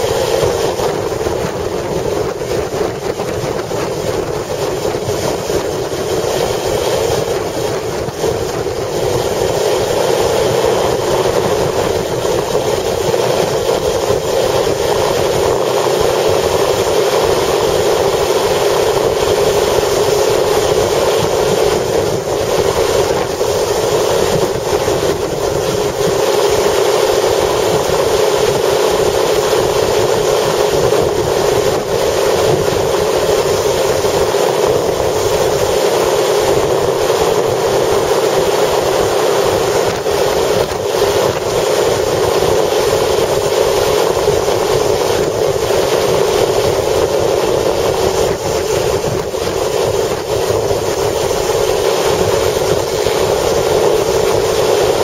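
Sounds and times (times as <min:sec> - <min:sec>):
strong wind rushing: 0:00.0 - 0:55.0
vehicle running hum: 0:00.0 - 0:55.0.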